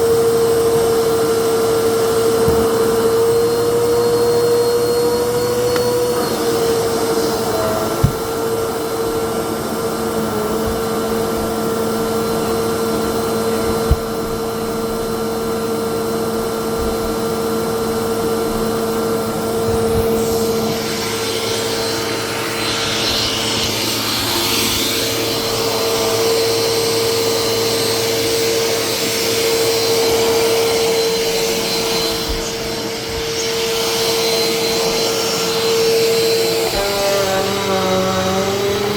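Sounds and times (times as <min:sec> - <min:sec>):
vacuum cleaner running: 0:00.0 - 0:38.9
sharp knocks: 0:08.0 - 0:08.4.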